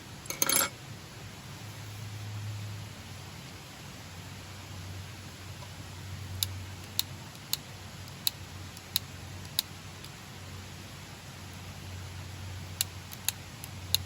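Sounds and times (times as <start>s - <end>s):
low steady hum: 0.0s - 14.0s
light metallic ticks: 6.4s - 10.2s, 12.8s - 14.0s.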